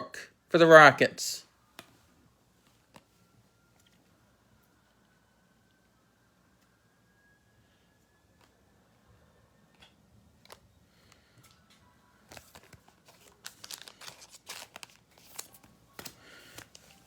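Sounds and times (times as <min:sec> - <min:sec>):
cards being handled: 0:02.6 - 0:04.1, 0:09.7 - 0:17.0
foil wrapper crinkling and tearing: 0:12.3 - 0:17.0.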